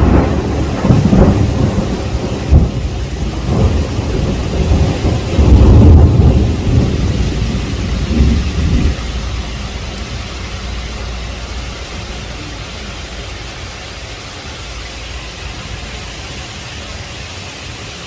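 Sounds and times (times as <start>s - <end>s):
sharp thunder crack: 0.0s - 9.9s
rolling thunder: 0.0s - 13.6s
heavy rain: 0.0s - 18.0s.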